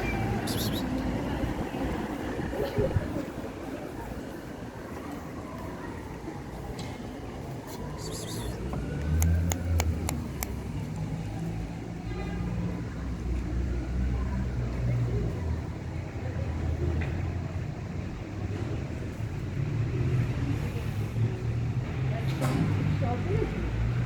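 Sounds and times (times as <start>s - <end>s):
vehicle engine rumbling: 7.0s - 12.0s
sharp clicks: 9.0s - 10.6s.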